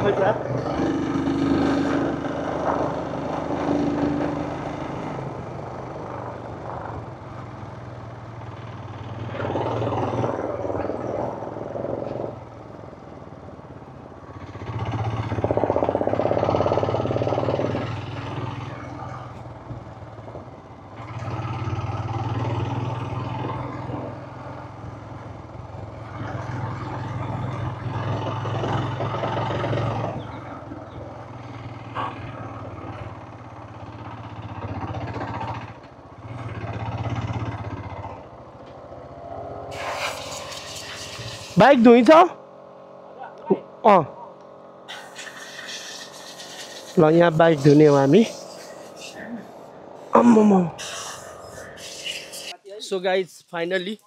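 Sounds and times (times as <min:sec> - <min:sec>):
motorcycle engine running: 0:00.0 - 0:52.5.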